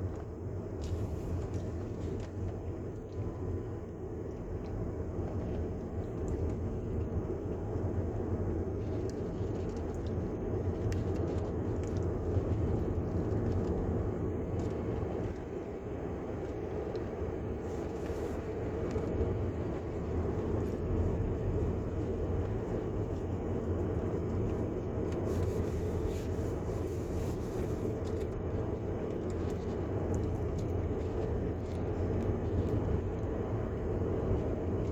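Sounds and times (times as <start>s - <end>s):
car engine drone: 0.0s - 34.9s
tyre and road noise: 4.2s - 34.9s.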